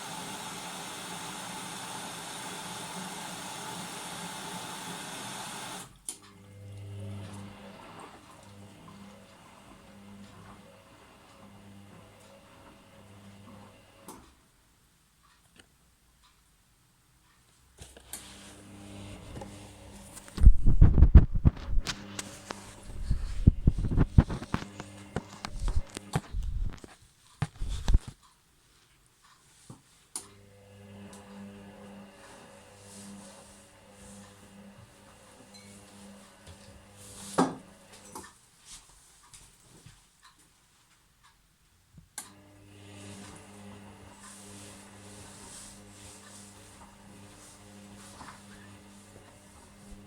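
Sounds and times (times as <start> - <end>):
washing machine humming: 0.0 - 14.2, 18.2 - 26.9, 30.3 - 38.2, 42.3 - 50.0.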